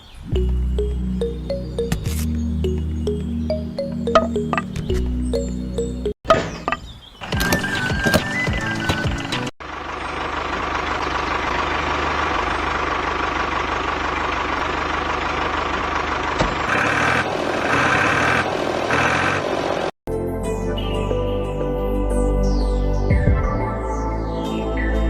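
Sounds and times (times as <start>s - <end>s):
model tractor motor running: 7.2s - 19.9s.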